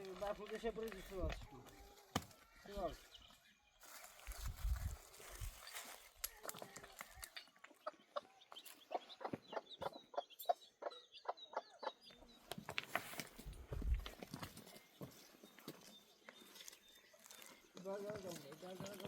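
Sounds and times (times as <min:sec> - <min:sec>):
chickens clucking: 0:06.2 - 0:12.8.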